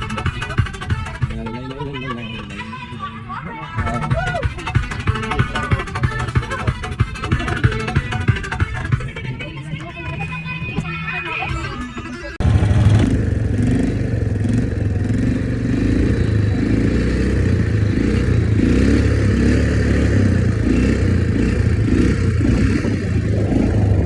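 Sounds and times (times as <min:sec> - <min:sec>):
music: 0:00.0 - 0:12.4
vehicle rumbling in motion: 0:00.0 - 0:24.0.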